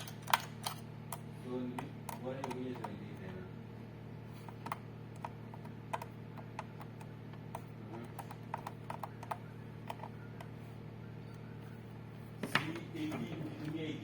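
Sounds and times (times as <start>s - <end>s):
keys clicking: 0.0s - 1.2s
steady low hum: 0.0s - 14.0s.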